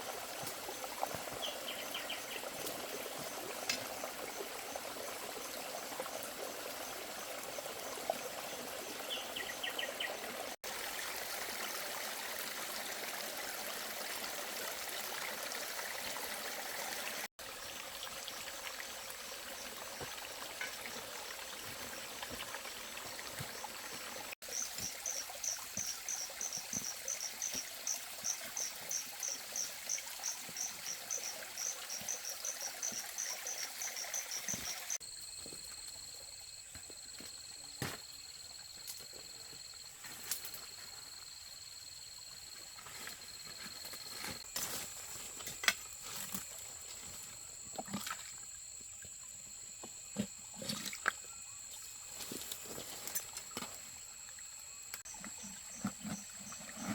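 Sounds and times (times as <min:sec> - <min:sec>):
rushing water: 0:00.0 - 0:35.0
faint insect chirr: 0:23.6 - 0:56.9
high insect chirps: 0:24.4 - 0:47.4.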